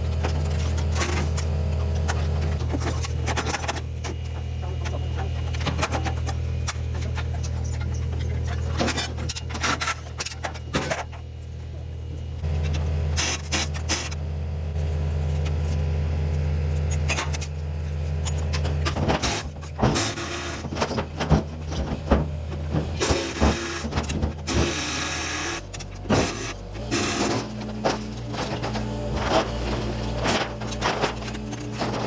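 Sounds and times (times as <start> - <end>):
machine engine hum: 0.0 - 32.0
metal grinding and rasping: 18.2 - 32.0
metal clanking: 25.7 - 32.0.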